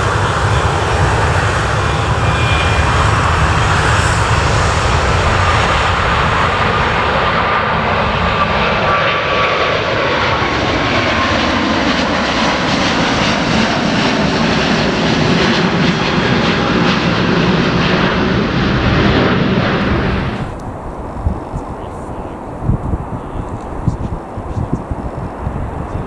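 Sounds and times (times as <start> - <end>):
loud jet engine noise: 0.0 - 26.0
faint descending whine: 0.6 - 8.9.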